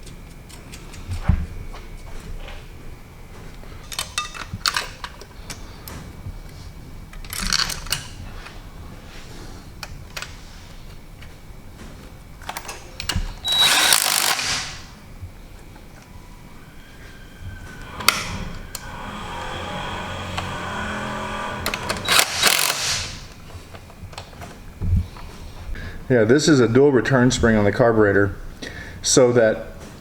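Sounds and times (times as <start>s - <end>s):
power tool bursts: 13.4s - 15.0s, 17.8s - 23.4s.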